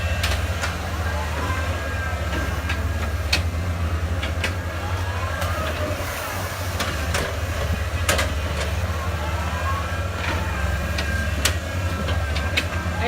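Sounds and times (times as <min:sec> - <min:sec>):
excavator diesel engine drone: 0:00.0 - 0:13.0
hydraulics whining: 0:00.0 - 0:13.0.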